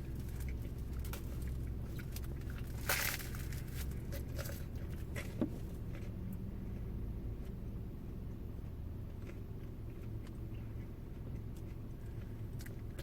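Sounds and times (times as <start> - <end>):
person chewing: 9.1 - 13.0.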